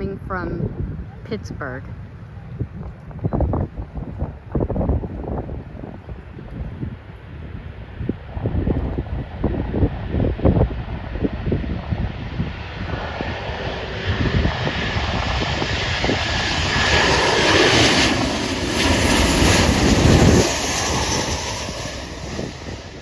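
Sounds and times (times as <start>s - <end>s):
jet airliner passing: 0.0s - 23.0s
wind buffeting microphone: 0.0s - 23.0s.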